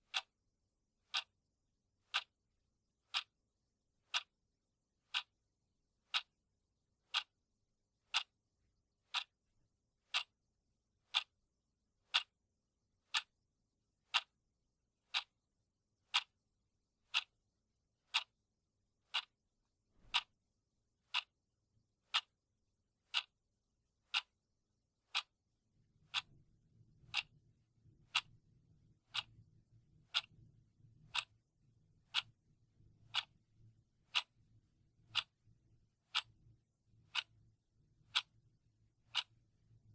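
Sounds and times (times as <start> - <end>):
clock ticking: 0.0 - 0.3, 1.1 - 1.3, 2.0 - 2.3, 3.1 - 3.3, 4.0 - 4.3, 5.1 - 5.3, 6.0 - 6.4, 7.1 - 7.4, 8.1 - 8.4, 9.1 - 9.4, 10.1 - 10.4, 11.0 - 11.3, 12.1 - 12.4, 13.1 - 13.3, 14.1 - 14.4, 15.0 - 15.4, 16.1 - 16.4, 17.1 - 17.4, 18.1 - 18.4, 19.1 - 19.4, 20.0 - 20.4, 21.0 - 21.4, 22.1 - 22.4, 23.1 - 23.4, 24.1 - 24.4, 25.1 - 25.4, 26.1 - 26.4, 27.1 - 27.4, 28.0 - 28.3, 29.1 - 29.4, 30.1 - 30.4, 31.1 - 31.4, 32.1 - 32.4, 33.0 - 33.4, 34.1 - 34.4, 35.1 - 35.4, 36.1 - 36.4, 37.1 - 37.4, 38.1 - 38.4, 39.0 - 39.4.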